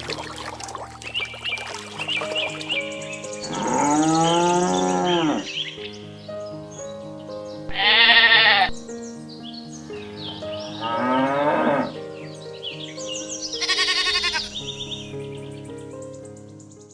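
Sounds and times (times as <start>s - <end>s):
light background music: 0.0s - 16.9s
sheep bleating: 7.7s - 8.8s, 13.6s - 14.6s.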